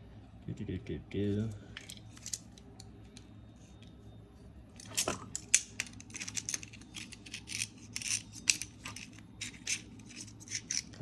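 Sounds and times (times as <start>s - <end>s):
small tools clicking and scraping: 4.8s - 11.0s.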